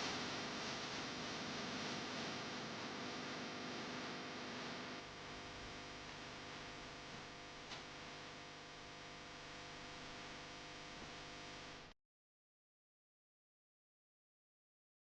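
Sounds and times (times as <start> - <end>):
background hiss: 0.0 - 11.8.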